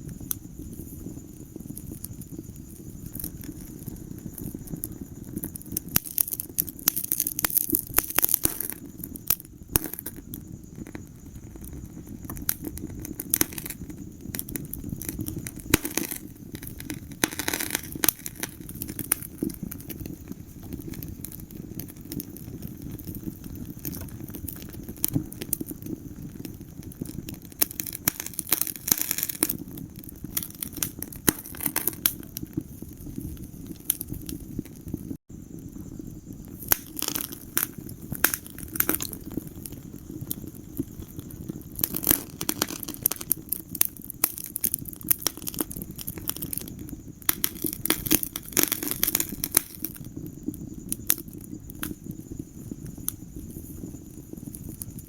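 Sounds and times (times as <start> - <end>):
fire crackling: 0.0 - 55.0
sharp pops: 5.4 - 33.0, 36.5 - 41.0.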